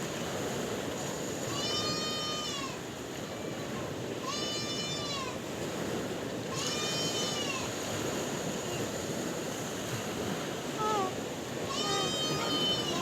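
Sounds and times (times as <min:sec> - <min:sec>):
sea waves washing: 0:05.4 - 0:13.0.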